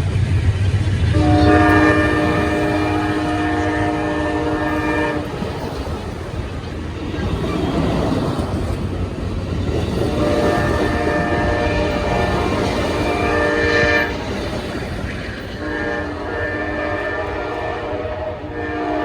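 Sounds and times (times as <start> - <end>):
passing train rumble: 0.0 - 19.0
locomotive air horn: 1.1 - 5.6, 10.1 - 14.3, 15.6 - 19.0.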